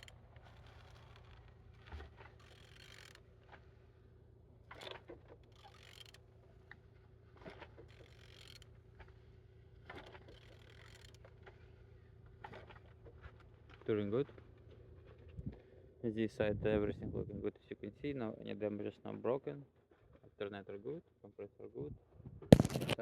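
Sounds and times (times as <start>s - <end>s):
camera handling scrapes and rustles: 22.5s - 23.0s.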